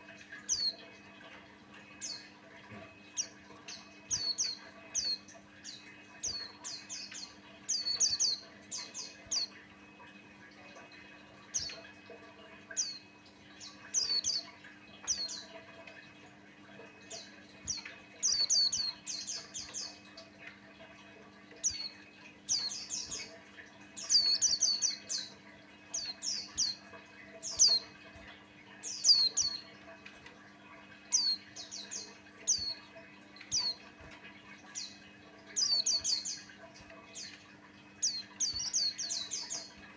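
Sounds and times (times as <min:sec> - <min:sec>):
bird twittering: 0:00.4 - 0:00.8, 0:03.1 - 0:09.6, 0:13.6 - 0:15.5, 0:17.1 - 0:20.0, 0:21.6 - 0:23.4, 0:24.0 - 0:28.0, 0:28.8 - 0:29.7, 0:31.1 - 0:33.9, 0:34.6 - 0:37.4, 0:38.0 - 0:39.9.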